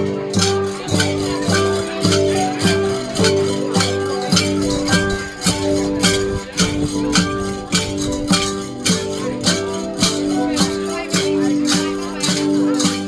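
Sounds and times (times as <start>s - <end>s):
bronze gongs struck: 0.0s - 13.0s.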